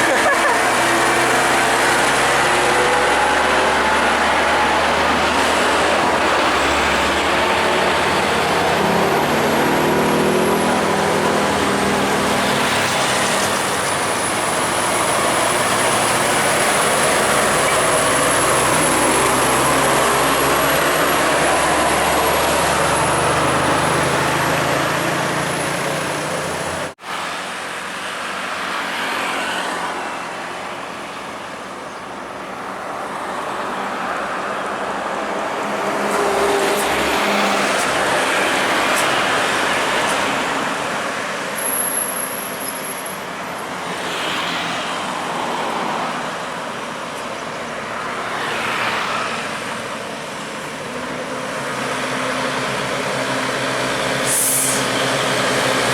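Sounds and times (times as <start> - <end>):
heavy trucks driving past: 0.0 - 55.9.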